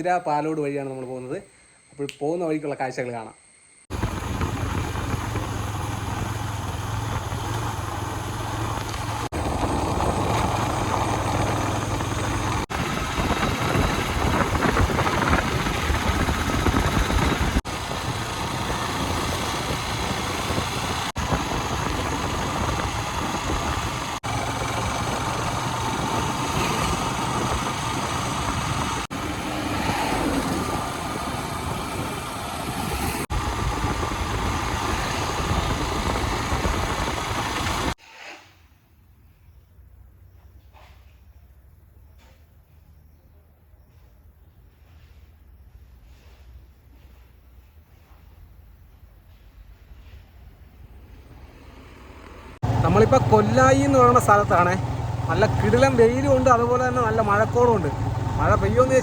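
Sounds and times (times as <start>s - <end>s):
vehicle engine: 3.9s - 38.0s, 49.3s - 59.0s
road noise: 3.9s - 38.2s, 49.1s - 59.0s.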